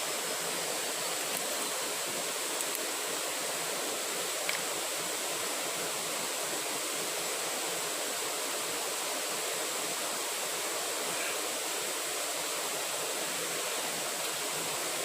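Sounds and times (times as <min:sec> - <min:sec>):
running water: 0:00.0 - 0:15.0
thin high hiss: 0:00.0 - 0:15.0
faint click: 0:04.4 - 0:04.6.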